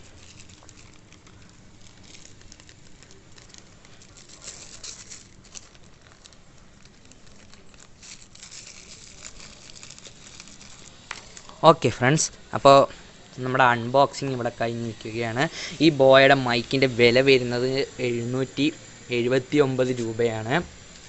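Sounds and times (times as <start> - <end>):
plastic packaging crinkling: 0.0 - 13.4, 18.8 - 21.0.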